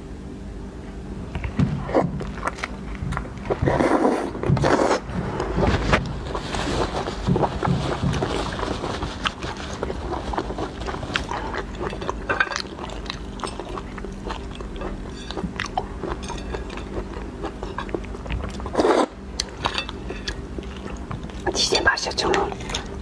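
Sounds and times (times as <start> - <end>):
chewing shellfish: 1.2 - 23.0
shells crunching: 6.3 - 21.6.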